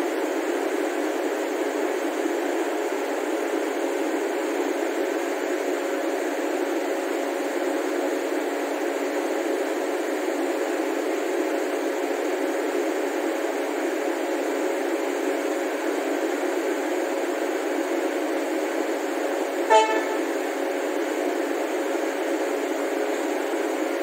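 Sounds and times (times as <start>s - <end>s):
train equipment droning: 19.6s - 21.1s.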